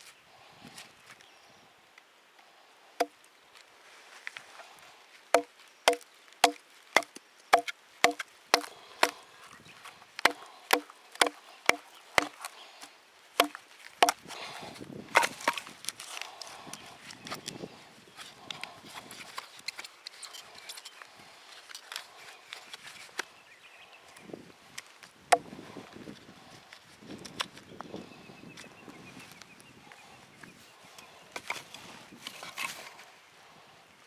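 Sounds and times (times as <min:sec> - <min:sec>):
blade chopping wood knocks: 0:05.4 - 0:06.6, 0:07.6 - 0:09.2, 0:13.4 - 0:14.2.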